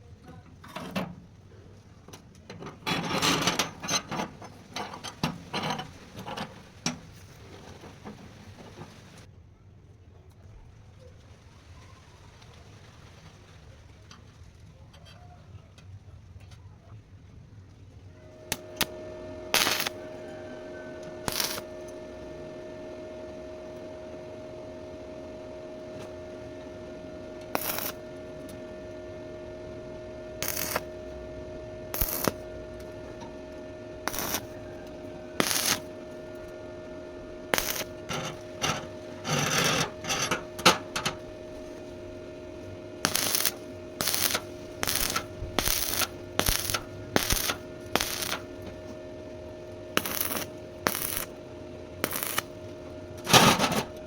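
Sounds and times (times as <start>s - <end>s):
hand tools clicking and scraping: 2.5s - 7.1s, 19.6s - 20.0s, 20.8s - 22.0s, 27.4s - 28.6s, 30.4s - 30.9s, 34.0s - 36.5s, 37.5s - 42.0s, 43.0s - 48.9s, 50.0s - 51.3s, 52.0s - 52.5s, 53.2s - 54.0s
faint steady tones: 18.0s - 54.0s
steady hum: 18.0s - 54.0s.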